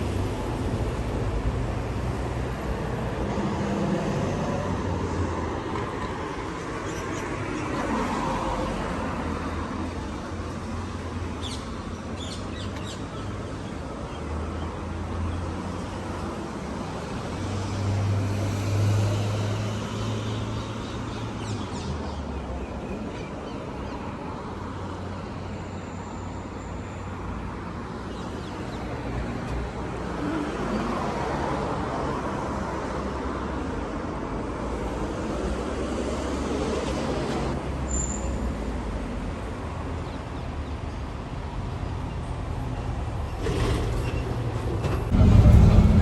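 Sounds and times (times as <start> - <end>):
vehicle rumble: 42.3 - 46.0.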